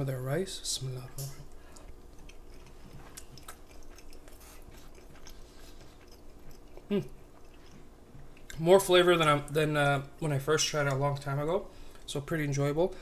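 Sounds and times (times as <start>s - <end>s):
person chewing: 1.4s - 8.6s.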